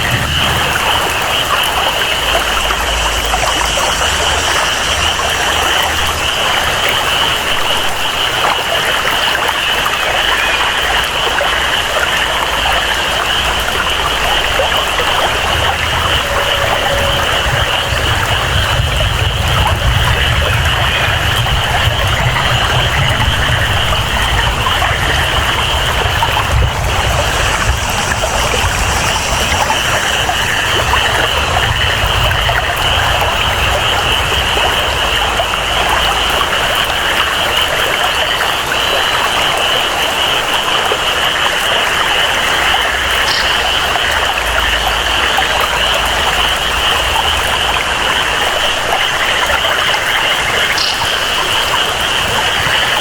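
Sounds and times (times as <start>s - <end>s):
flowing water: 0.0s - 53.0s
high-pitched chorus of frogs: 0.0s - 53.0s
steady rain: 0.0s - 53.0s.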